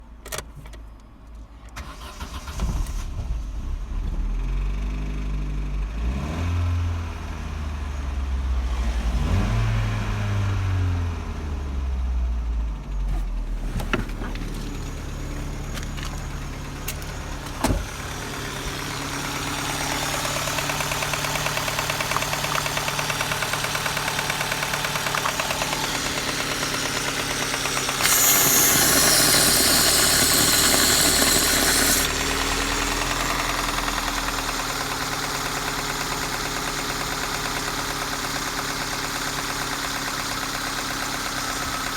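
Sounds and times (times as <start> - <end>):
petrol engine running: 13.1 - 41.9
fast even ticking clatter: 20.4 - 32.2.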